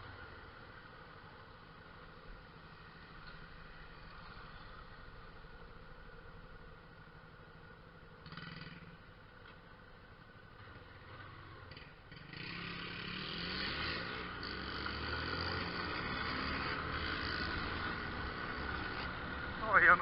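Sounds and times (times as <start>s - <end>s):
motorcycle engine accelerating: 10.6s - 19.7s.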